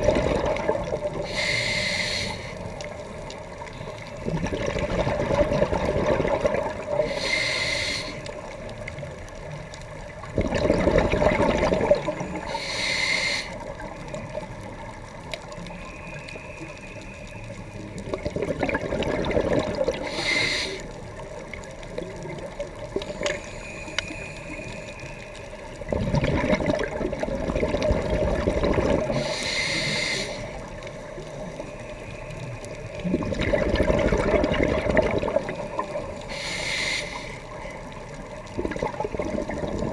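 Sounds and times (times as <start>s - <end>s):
exhaled bubbles rushing: 0.0s - 1.3s, 4.1s - 7.1s, 10.2s - 12.5s, 18.0s - 20.1s, 25.8s - 29.3s, 32.9s - 36.2s, 38.2s - 39.9s
regulator hiss on inhale: 1.1s - 4.2s, 6.9s - 8.9s, 12.0s - 14.3s, 15.4s - 18.0s, 19.9s - 21.2s, 22.9s - 25.9s, 29.0s - 33.0s, 35.5s - 38.0s.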